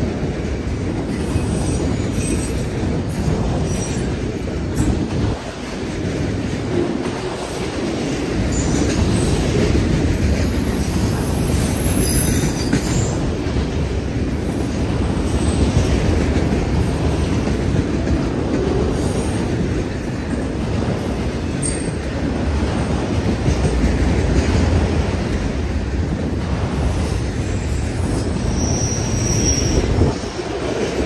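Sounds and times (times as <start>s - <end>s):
freight train wheels rumbling: 0.0s - 31.0s
high-pitched wheel squeals: 28.5s - 29.9s.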